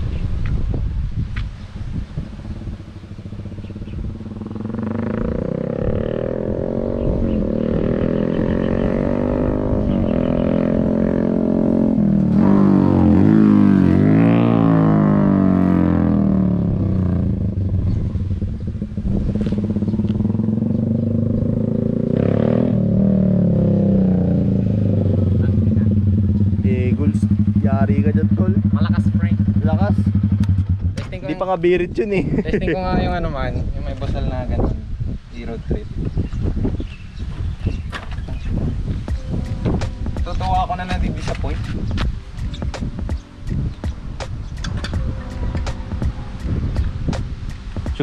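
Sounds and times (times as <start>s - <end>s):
loud motorcycle engine revving: 2.2s - 31.3s.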